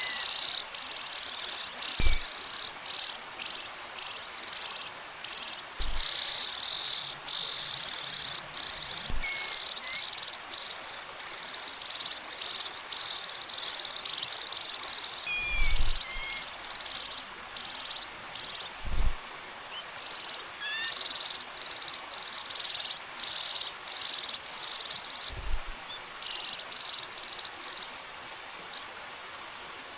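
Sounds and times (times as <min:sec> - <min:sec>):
nestling birds begging calls: 0:00.0 - 0:04.8, 0:05.4 - 0:10.2, 0:13.0 - 0:16.9
dull thumps: 0:02.0 - 0:02.3.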